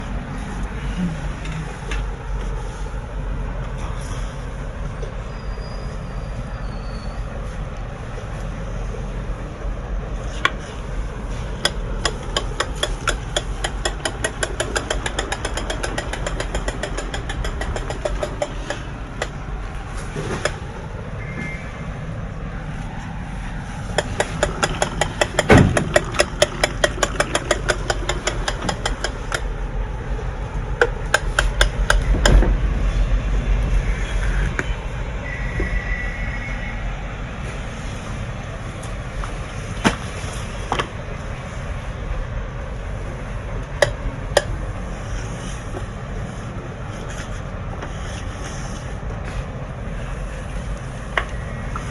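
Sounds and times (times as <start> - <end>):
toy mechanism clicking rapidly: 12.1 - 19.3, 24.0 - 29.5
low rumble: 31.6 - 38.9.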